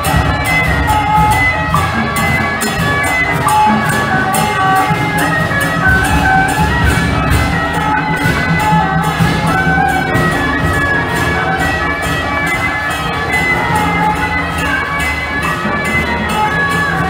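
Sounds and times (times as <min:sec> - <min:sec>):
drums and cymbals beating: 0:00.0 - 0:17.0
wind instrument melody: 0:00.0 - 0:17.0.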